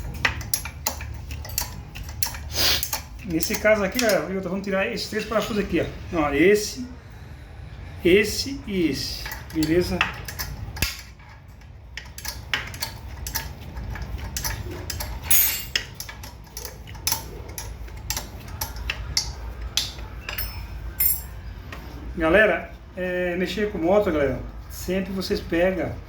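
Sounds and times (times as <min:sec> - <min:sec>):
metal tools clinking on engine: 0:00.0 - 0:05.8, 0:09.0 - 0:21.9.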